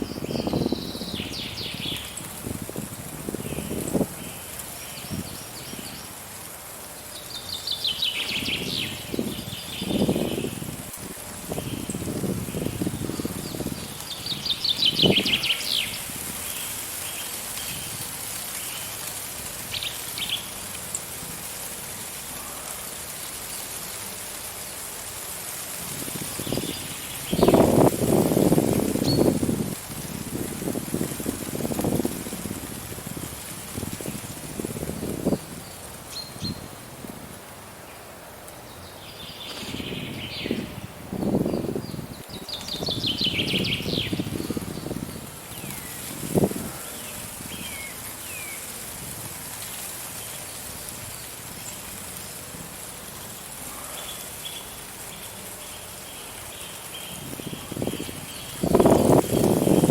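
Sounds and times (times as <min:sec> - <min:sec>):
small birds chirping: 0:00.0 - 0:02.5, 0:03.3 - 0:06.2, 0:06.8 - 0:10.8, 0:11.5 - 0:21.1, 0:26.2 - 0:30.4, 0:33.8 - 0:36.7, 0:37.9 - 0:48.8, 0:53.6 - 0:59.9
wind gusting: 0:00.0 - 0:04.4, 0:08.1 - 0:16.6, 0:25.8 - 0:37.6, 0:39.4 - 0:48.2, 0:57.1 - 0:59.9.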